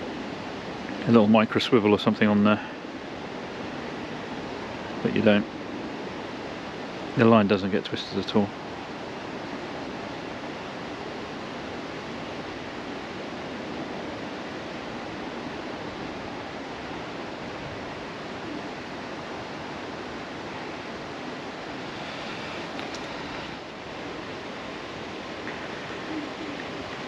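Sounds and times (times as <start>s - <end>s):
outdoor background rushing hiss: 0.0s - 27.0s.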